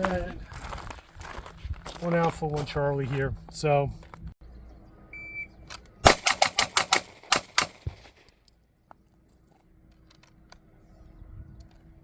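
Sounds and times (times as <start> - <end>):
pistol shots: 6.0 - 8.1.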